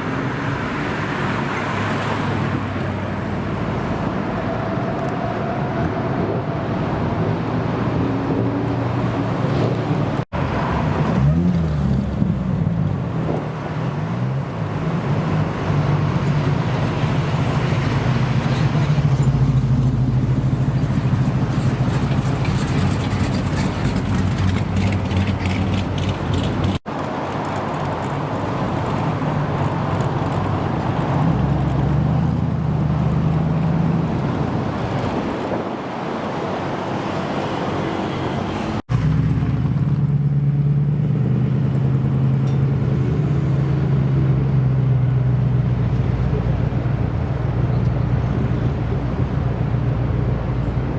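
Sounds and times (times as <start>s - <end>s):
engine revving: 8.0s - 13.6s
car engines idling: 14.5s - 26.8s.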